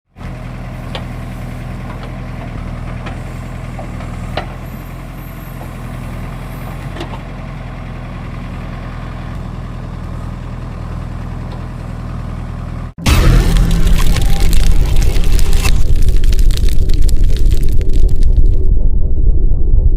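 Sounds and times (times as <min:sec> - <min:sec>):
heavy diesel engine idling: 0:00.2 - 0:13.0.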